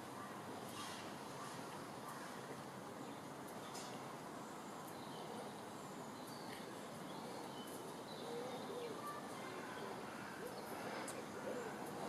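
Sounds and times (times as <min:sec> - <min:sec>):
outdoor background hiss: 0:00.0 - 0:12.0
soft low bird cooing: 0:06.4 - 0:12.0.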